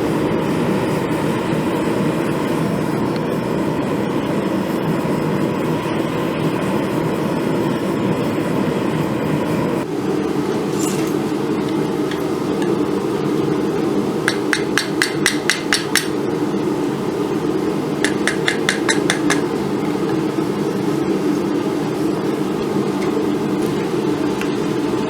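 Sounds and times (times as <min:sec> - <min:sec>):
hammer taps on hot steel: 0:14.3 - 0:16.2, 0:18.0 - 0:19.5.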